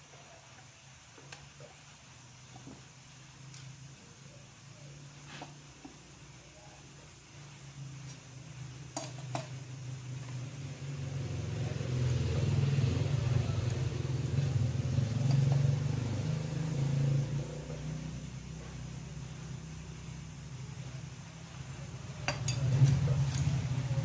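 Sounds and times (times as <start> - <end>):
vehicle engine passing by: 10.7 - 19.0.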